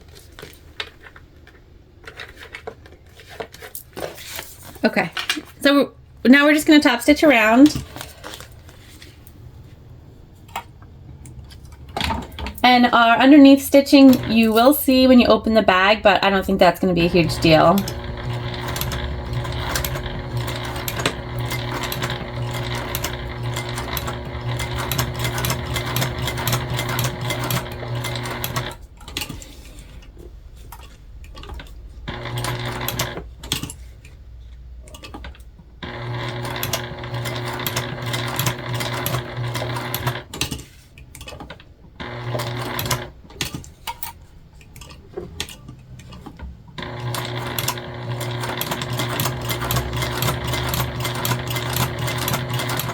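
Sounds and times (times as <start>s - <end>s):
sewing machine stitching vinyl: 11.3s - 34.0s, 34.9s - 43.8s, 46.8s - 52.9s.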